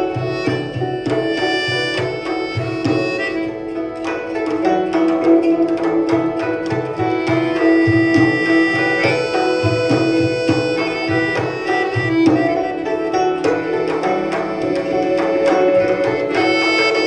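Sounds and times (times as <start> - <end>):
hand drums: 0.0 - 17.0
sustained melodic instrument tones: 0.0 - 17.0.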